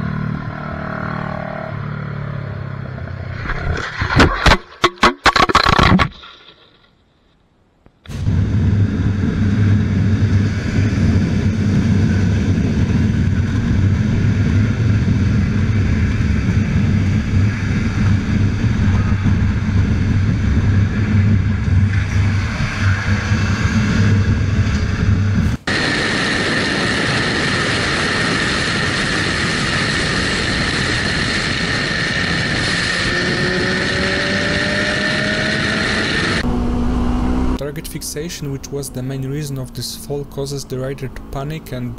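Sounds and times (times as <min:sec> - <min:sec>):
road noise: 0:00.0 - 0:07.0, 0:07.6 - 0:41.9
constant high whine: 0:00.0 - 0:41.9
wind noise: 0:08.1 - 0:37.6
motorcycle engine running: 0:08.3 - 0:25.7.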